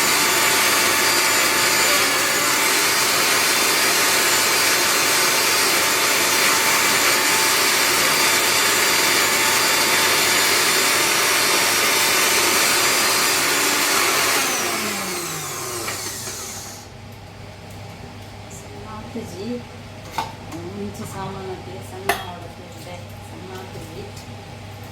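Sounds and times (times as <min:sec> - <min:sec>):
mixer grinder motor whine: 0:00.0 - 0:16.9.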